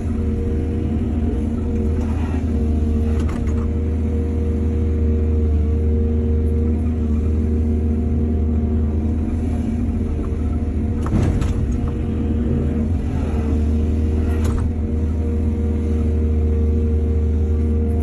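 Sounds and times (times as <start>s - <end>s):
excavator clanking: 0.0s - 4.1s, 9.9s - 15.4s
diesel engine running: 0.0s - 18.0s.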